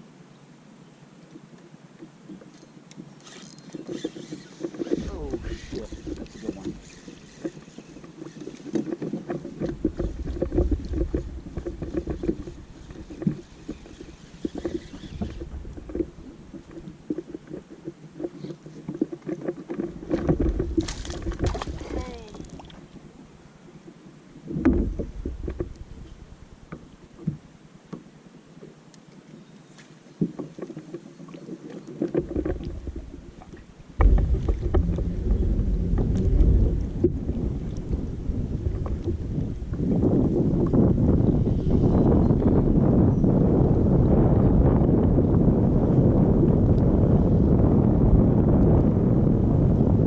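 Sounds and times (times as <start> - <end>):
kayak knocking and rumbling: 1.4 - 23.3, 24.4 - 28.8, 30.0 - 50.0.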